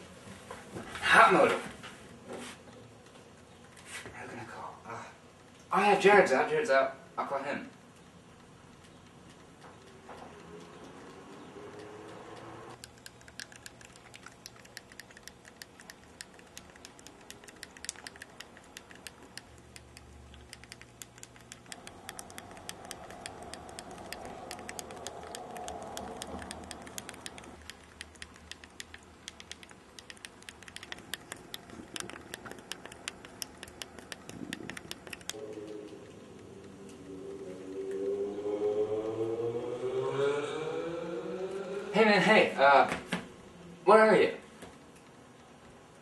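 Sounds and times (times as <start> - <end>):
low steady hum: 0.0 - 46.0
rapid sharp clicks: 7.7 - 37.1.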